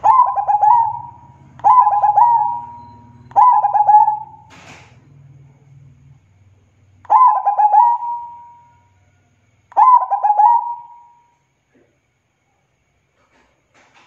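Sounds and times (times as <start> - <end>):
dove cooing: 0.0 - 4.7, 7.1 - 8.6, 9.8 - 11.2.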